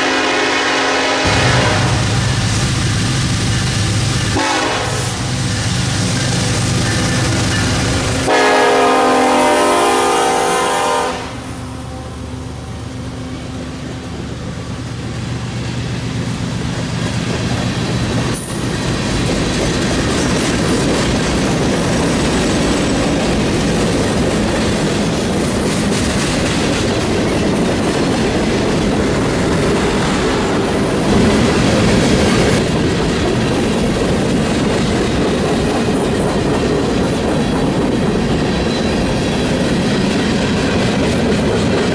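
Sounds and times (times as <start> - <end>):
locomotive air horn: 0.0 - 2.2, 4.4 - 5.2, 8.2 - 12.3
locomotive engine drone: 1.2 - 41.9
wheels clacking on rails: 1.6 - 10.0, 11.6 - 41.9.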